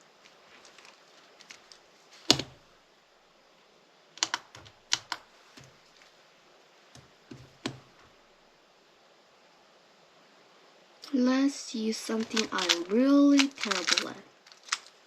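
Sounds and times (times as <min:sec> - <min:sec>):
puzzle cube clacking: 0:00.7 - 0:02.6, 0:04.2 - 0:05.7, 0:12.0 - 0:15.0.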